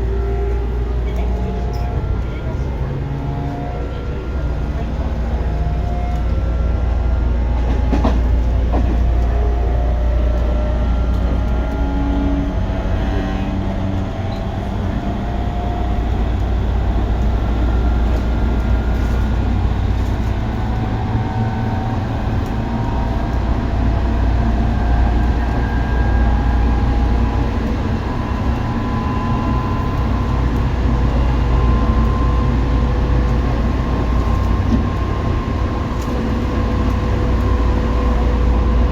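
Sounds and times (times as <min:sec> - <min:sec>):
wheels rumbling on rail: 0:00.0 - 0:38.9
traction motor whine: 0:08.5 - 0:38.9.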